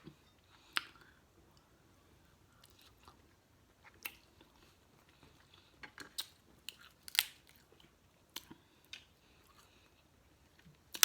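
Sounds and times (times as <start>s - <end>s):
person crunching and chewing food: 2.5s - 11.0s.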